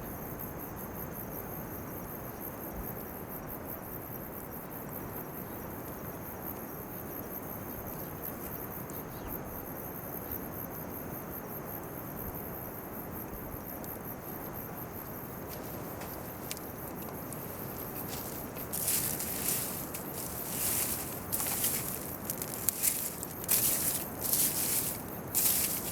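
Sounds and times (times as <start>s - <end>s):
crickets chirping: 7.0s - 25.9s.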